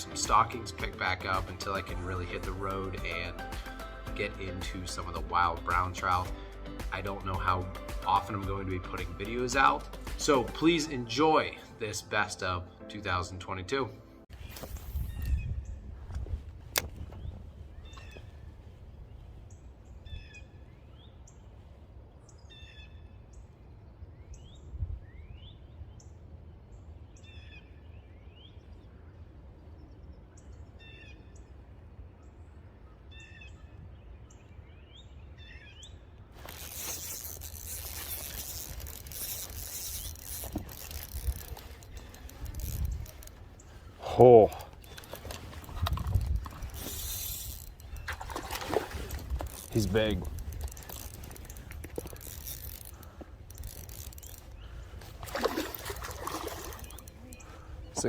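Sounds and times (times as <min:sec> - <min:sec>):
small birds chirping: 0:32.2 - 0:58.0.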